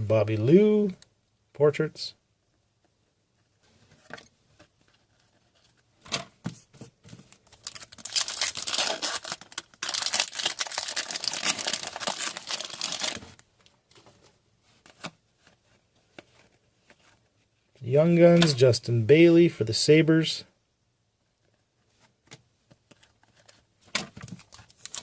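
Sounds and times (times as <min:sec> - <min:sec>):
foil wrapper tearing and crinkling: 0:07.6 - 0:13.4, 0:24.4 - 0:25.0.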